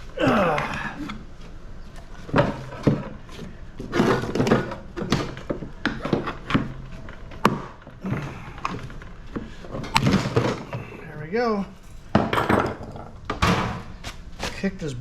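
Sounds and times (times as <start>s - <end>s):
metal parts knocking and clattering: 11.6s - 14.0s.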